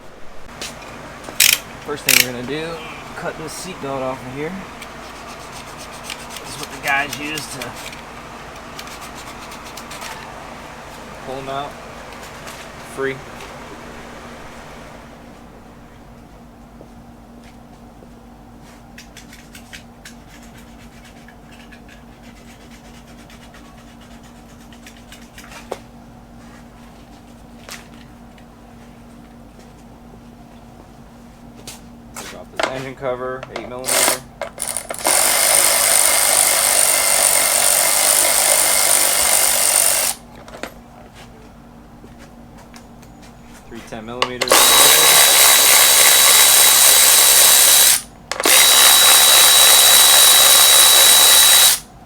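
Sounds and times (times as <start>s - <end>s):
steady low hum: 0.0s - 52.0s
tools clicking and rattling: 1.3s - 2.6s, 5.5s - 10.2s, 33.4s - 40.8s, 44.2s - 51.8s.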